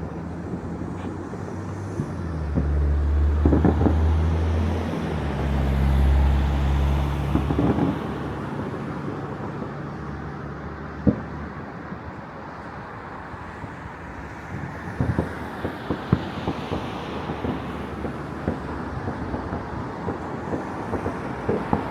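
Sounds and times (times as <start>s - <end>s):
distant firework bangs: 15.0s - 21.9s.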